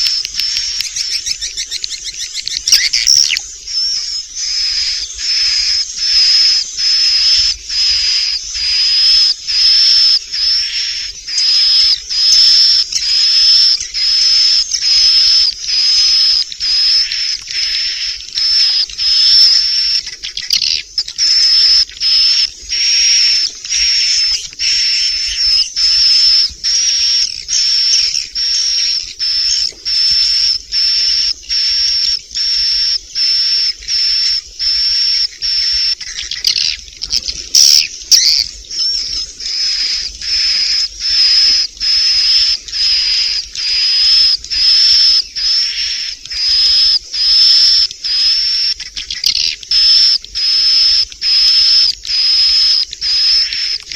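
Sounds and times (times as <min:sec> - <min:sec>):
swiftlets chirping and twittering: 0:00.0 - 0:53.9.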